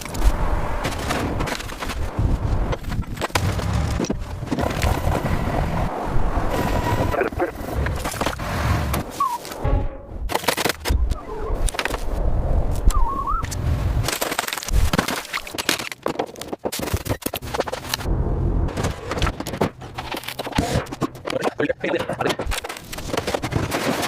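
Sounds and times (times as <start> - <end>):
low rumble: 18.0 - 19.9
knocks clattering and scraping: 18.7 - 24.0.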